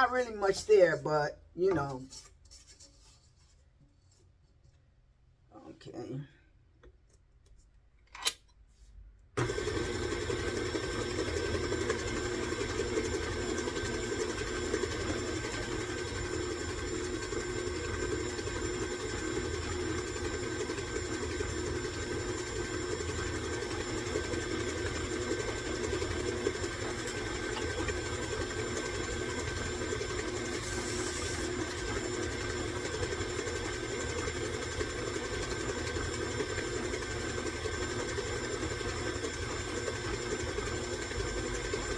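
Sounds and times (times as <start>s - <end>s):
electric stand mixer running: 9.4s - 41.9s.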